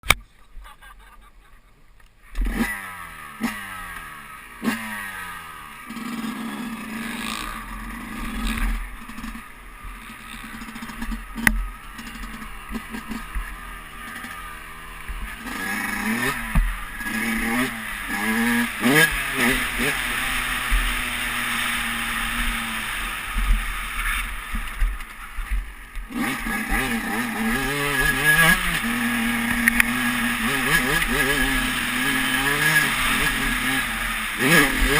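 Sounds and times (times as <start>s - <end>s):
dirt bike engine revving: 2.2s - 34.9s.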